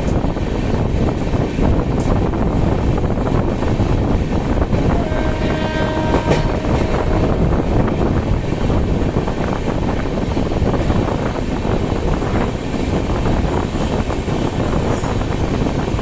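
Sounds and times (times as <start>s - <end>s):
train rail rumble: 0.0s - 16.0s
train horn: 4.9s - 7.9s.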